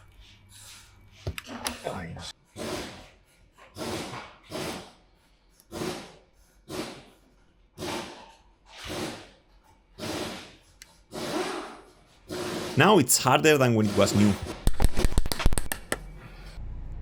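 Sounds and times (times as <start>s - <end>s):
rasping strokes on plastic: 5.6s - 9.4s.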